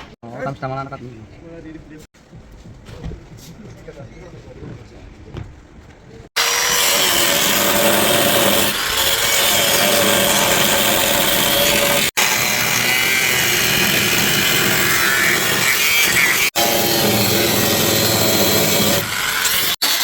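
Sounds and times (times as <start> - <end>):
power tool grinding metal: 6.4 - 20.0.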